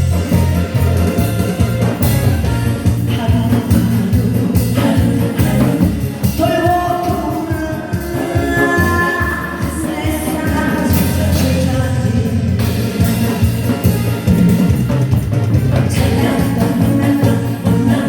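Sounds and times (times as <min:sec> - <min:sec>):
backing track with heavy beat: 0:00.0 - 0:18.0
amplified person singing: 0:02.4 - 0:14.7, 0:15.5 - 0:18.0.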